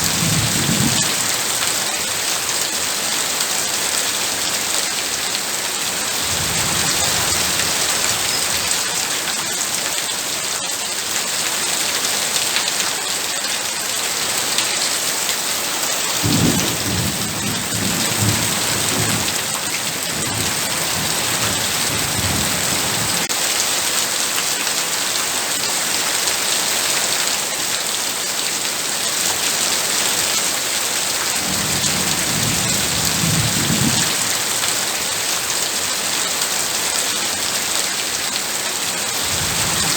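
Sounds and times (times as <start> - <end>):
thunder rolling: 0.0 - 1.3, 16.2 - 23.2, 31.4 - 34.2
heavy rain hissing: 0.0 - 23.6, 29.7 - 39.9.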